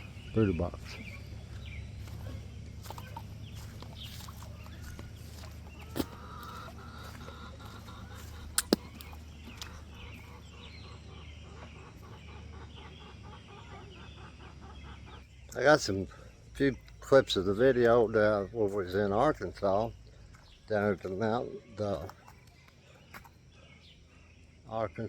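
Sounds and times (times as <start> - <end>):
young chickens clucking: 0.0 - 24.6
sharp clicks: 8.5 - 9.8.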